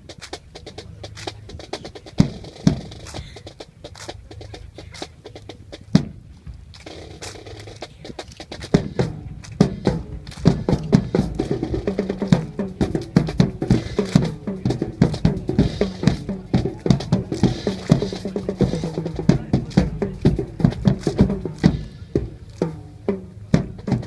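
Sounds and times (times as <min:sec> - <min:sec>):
sharp percussive drum strikes: 0:08.2 - 0:24.0.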